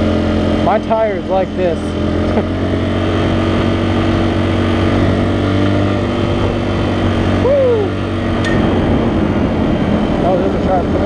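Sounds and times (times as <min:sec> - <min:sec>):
motorcycle engine running: 0:00.0 - 0:11.0
wind noise on microphone: 0:02.6 - 0:11.0.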